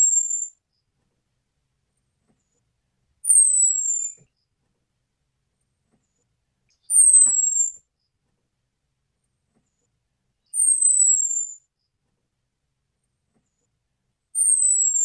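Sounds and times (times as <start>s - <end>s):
bird high whistled call: 0.0s - 0.6s, 3.2s - 4.2s, 6.8s - 7.8s, 10.5s - 11.6s, 14.4s - 15.0s.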